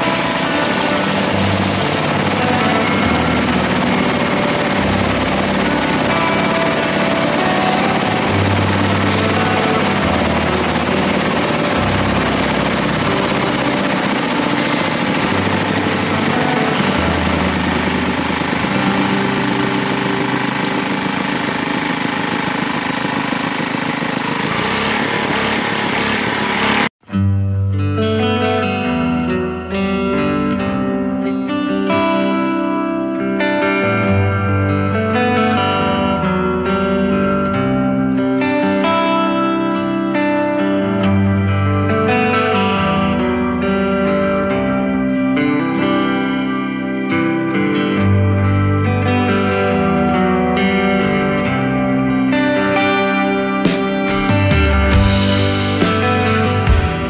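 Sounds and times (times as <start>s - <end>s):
drilling rig engine running: 0.0s - 27.0s, 41.4s - 57.0s.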